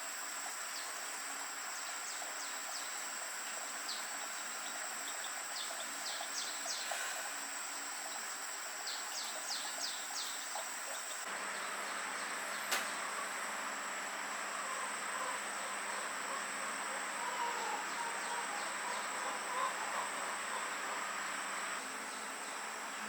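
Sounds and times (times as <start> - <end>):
insects droning: 0.0 - 23.0
sharp click: 12.7 - 13.0.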